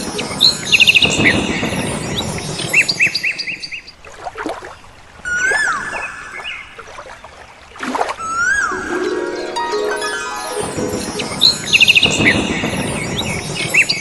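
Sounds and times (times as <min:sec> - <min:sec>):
whistled bird calls: 0:00.0 - 0:04.0, 0:05.2 - 0:06.8, 0:08.2 - 0:09.1, 0:10.7 - 0:14.0
birds chirping: 0:00.0 - 0:14.0.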